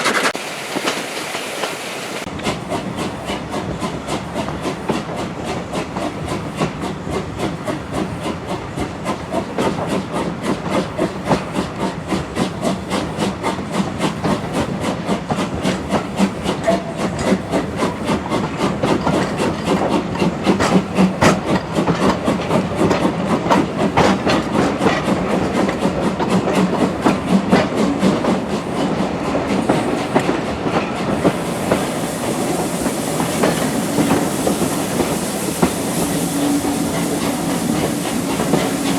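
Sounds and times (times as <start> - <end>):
steam hissing: 0.0 - 38.9
steam train chuffing: 0.0 - 38.9.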